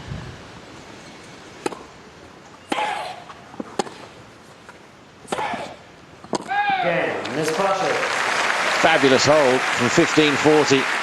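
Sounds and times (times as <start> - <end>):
tennis ball knocks: 5.3 - 6.8.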